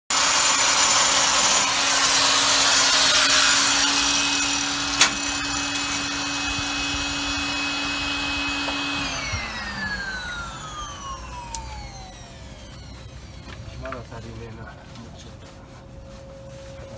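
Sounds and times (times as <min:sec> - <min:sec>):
electric power tool running: 0:00.1 - 0:14.0
sharp click: 0:04.8 - 0:05.4.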